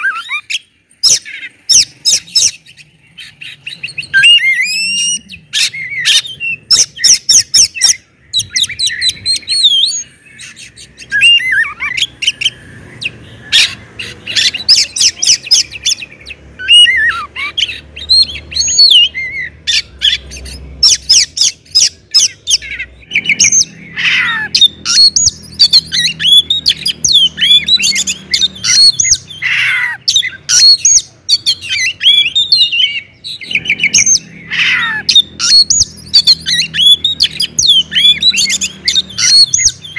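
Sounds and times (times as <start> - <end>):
songbird singing loudly: 0.0 - 39.9.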